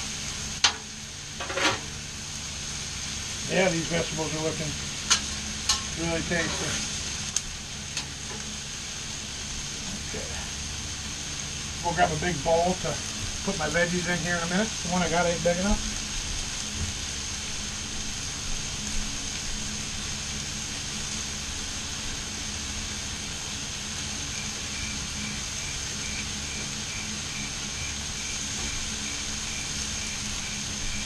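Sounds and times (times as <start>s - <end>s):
food sizzling on a griddle: 0.0s - 31.0s
faint high beeping: 24.2s - 31.0s.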